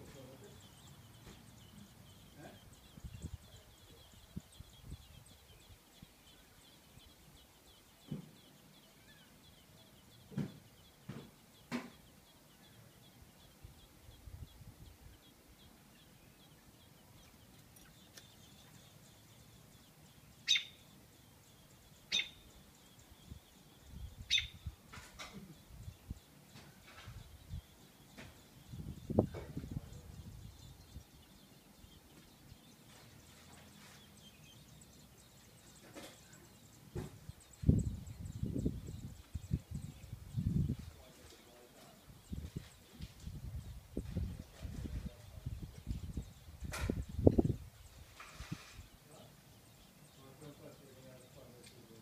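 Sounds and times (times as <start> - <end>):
bird chirping: 0.0 - 52.0
soft thumps: 8.0 - 8.4, 10.3 - 12.0, 36.9 - 37.3.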